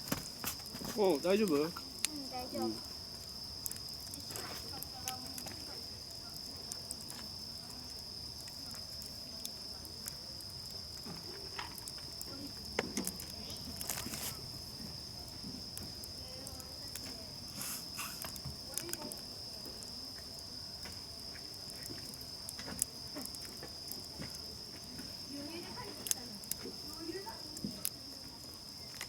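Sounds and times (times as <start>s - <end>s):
campfire crackling and popping: 0.0s - 29.0s
insects trilling: 0.0s - 29.0s.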